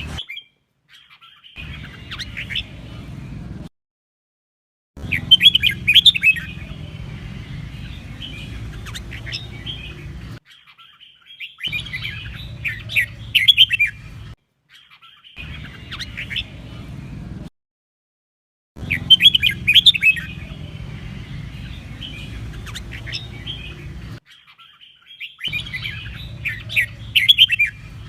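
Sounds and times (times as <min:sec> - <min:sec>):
bulbul singing warbled notes: 0:05.0 - 0:10.2, 0:18.8 - 0:24.0
steady low rumble: 0:05.0 - 0:10.4, 0:18.8 - 0:24.2.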